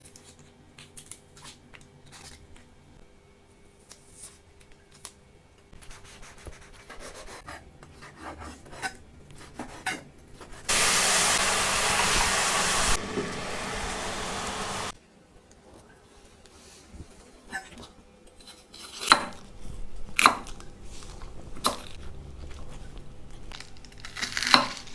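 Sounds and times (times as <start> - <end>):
loud steady hiss: 10.7 - 15.0.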